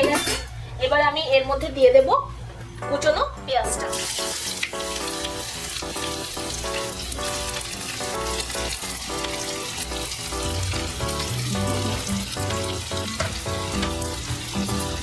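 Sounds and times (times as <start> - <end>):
onions sizzling in oil: 3.8 - 15.0
background music with bass line: 5.0 - 15.0.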